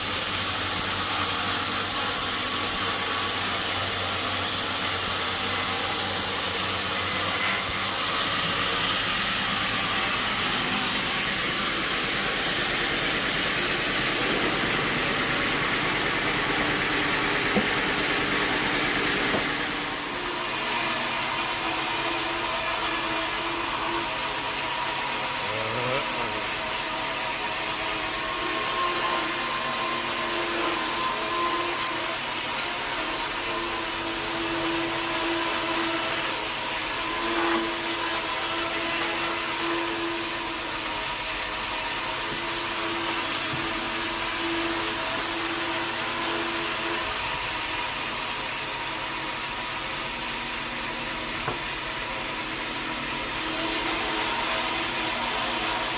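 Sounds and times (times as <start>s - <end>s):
sawmill machinery running: 0.0s - 55.9s.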